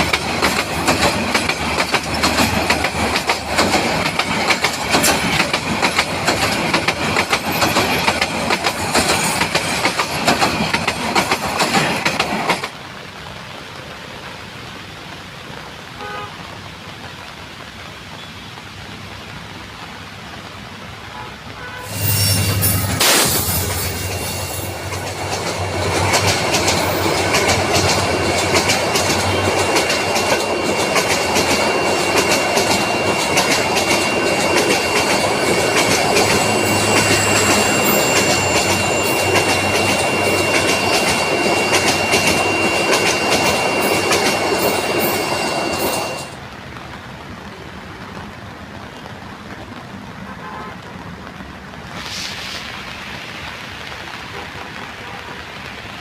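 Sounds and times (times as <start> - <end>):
train rumbling on rails: 0.0 - 15.8, 19.5 - 56.0
high squeal: 21.8 - 25.0, 30.0 - 46.4
high whine: 21.9 - 46.4
even hiss: 51.9 - 53.7.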